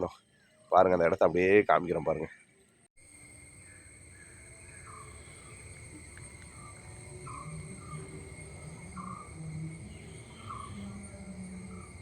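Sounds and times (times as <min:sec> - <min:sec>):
high-pitched insect drone: 0:03.0 - 0:12.0.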